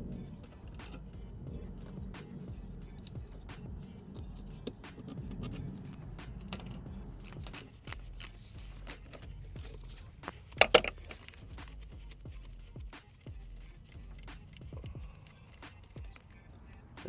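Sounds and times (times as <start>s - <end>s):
metal tools clinking: 4.6s - 12.2s.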